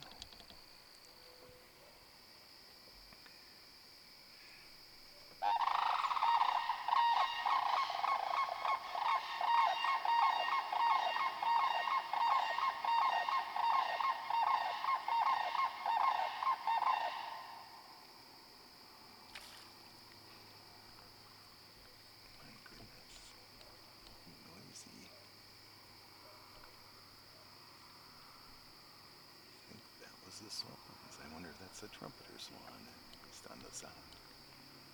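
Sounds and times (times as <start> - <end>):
swan honking: 5.4 - 17.6.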